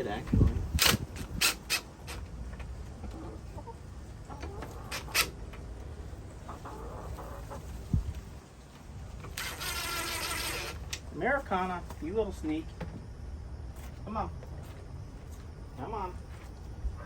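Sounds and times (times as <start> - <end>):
hens clucking softly: 2.8 - 8.1.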